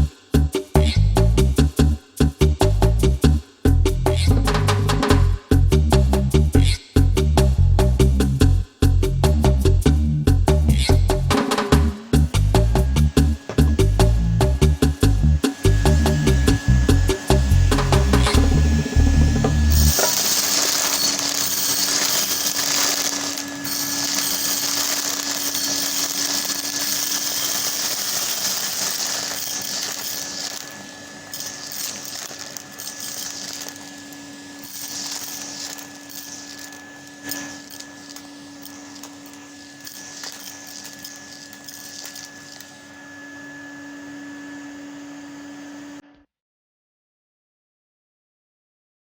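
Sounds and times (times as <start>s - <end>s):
vacuum cleaner motor hum: 12.0s - 46.1s
beads rattling through hose: 12.2s - 42.7s.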